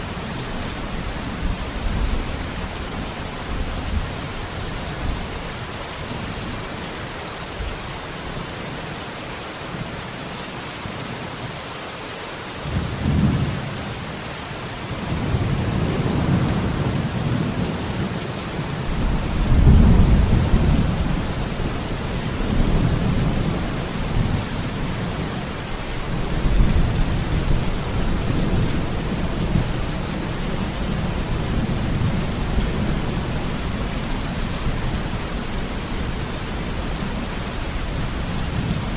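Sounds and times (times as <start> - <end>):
heavy rain falling: 0.0 - 38.9
thunder rumbling: 18.9 - 24.4.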